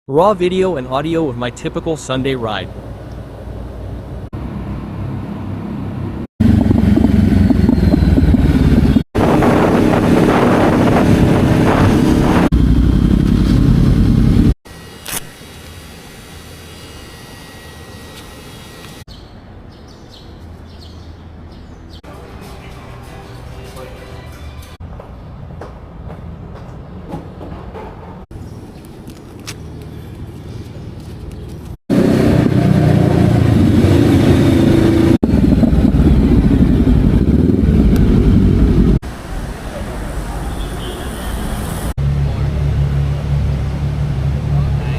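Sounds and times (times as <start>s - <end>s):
motorcycle engine droning: 4.4s - 19.0s, 31.9s - 39.0s.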